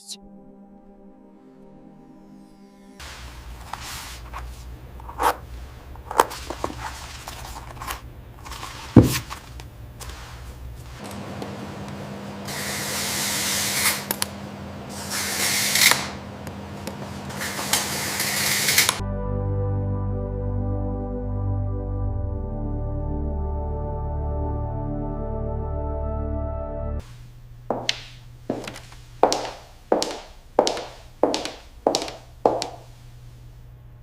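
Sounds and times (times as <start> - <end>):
hissing spray bursts: 12.5 - 14.0, 17.4 - 18.9.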